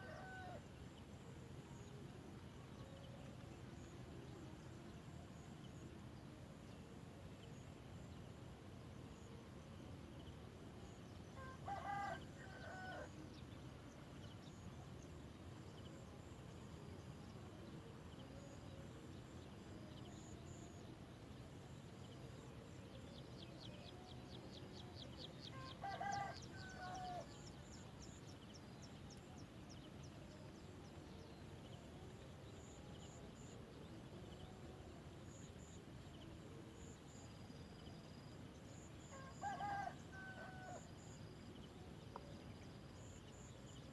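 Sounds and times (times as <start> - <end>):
low background hiss: 0.0 - 43.9
rooster crowing: 25.8 - 27.2, 39.1 - 40.8.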